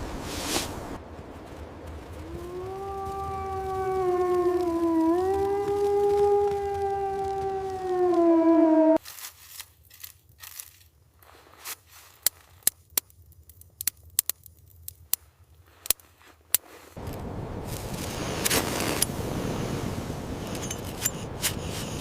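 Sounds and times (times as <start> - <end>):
sharp crackles and pops: 0.2 - 22.0
wolf howl: 2.2 - 9.0
wind noise: 17.0 - 22.0.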